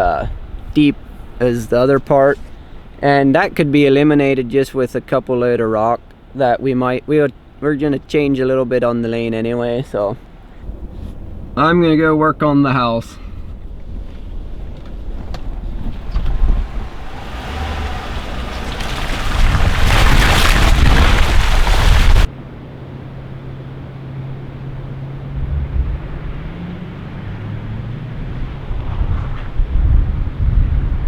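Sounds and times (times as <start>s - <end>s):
low vehicle engine hum: 0.0s - 31.0s
rushing noise: 16.0s - 22.3s.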